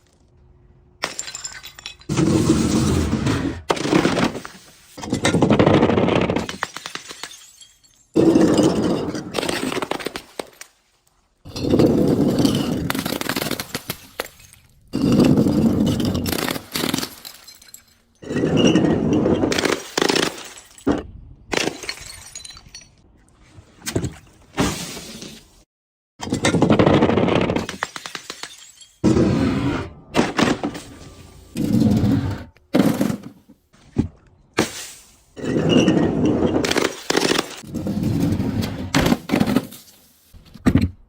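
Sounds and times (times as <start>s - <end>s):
glass crushing and shattering: 1.0s - 2.5s, 5.0s - 10.7s, 11.5s - 23.0s, 26.2s - 29.2s.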